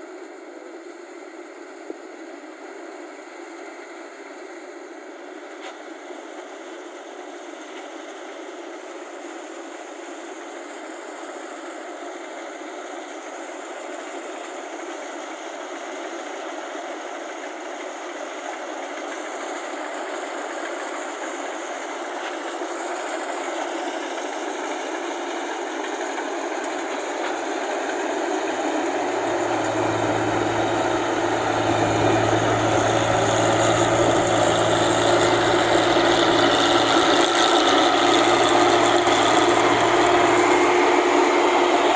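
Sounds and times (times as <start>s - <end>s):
combine harvester engine running: 25.6s - 41.9s
low engine hum: 28.3s - 41.9s.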